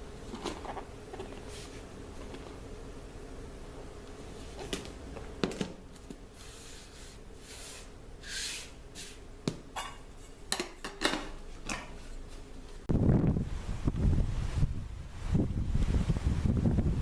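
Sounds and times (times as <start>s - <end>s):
wind gust on microphone: 12.9s - 17.0s.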